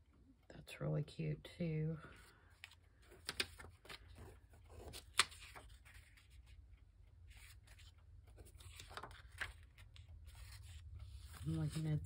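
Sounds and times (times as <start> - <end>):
paper cards rustling: 2.1 - 6.7, 7.3 - 12.0.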